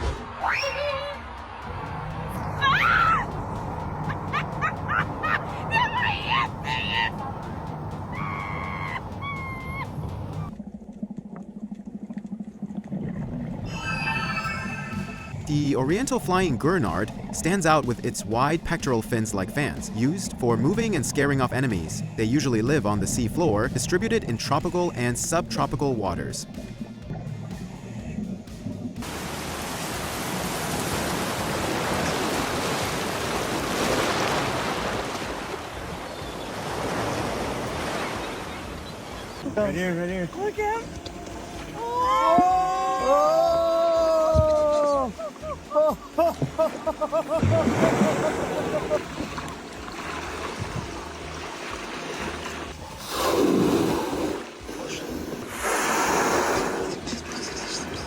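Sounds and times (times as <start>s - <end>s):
sea surf: 0.0s - 10.5s, 29.0s - 58.0s.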